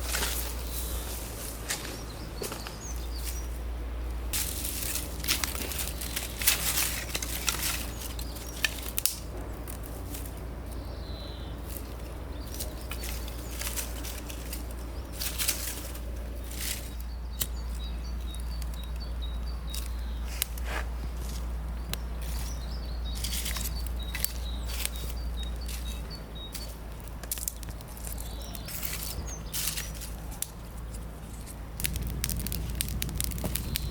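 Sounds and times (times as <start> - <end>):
bird chirping: 0.0 - 9.7, 10.4 - 20.5, 21.7 - 33.9
steady low rumble: 0.0 - 20.2, 20.9 - 33.9
clicks and rustles of handling: 4.3 - 10.8, 19.7 - 33.9.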